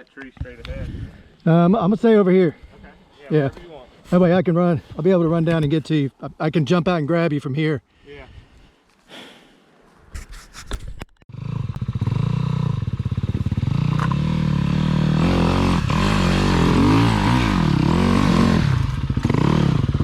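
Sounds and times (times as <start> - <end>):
dirt bike engine revving: 11.3 - 20.0.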